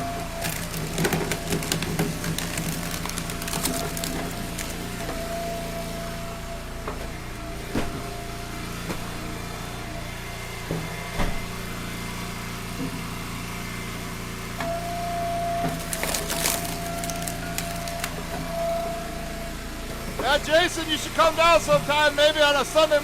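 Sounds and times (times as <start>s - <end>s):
wood cracking and splintering: 0.0s - 5.8s, 15.5s - 18.5s
log splitter engine running: 0.0s - 23.0s.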